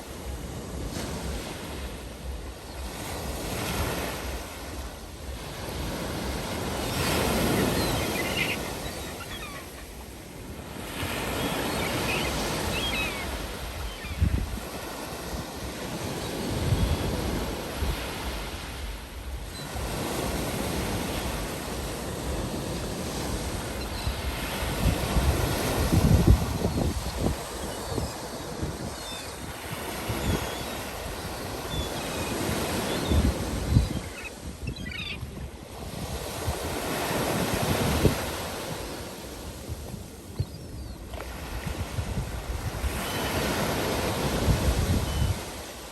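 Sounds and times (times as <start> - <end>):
sea waves washing ashore: 0.0 - 45.9
faint seagull cries: 7.4 - 10.1
wind rumbling on microphone: 12.7 - 15.6, 16.2 - 31.6, 39.5 - 43.0, 44.1 - 45.6
wind buffeting microphone: 12.9 - 15.4, 23.8 - 28.9.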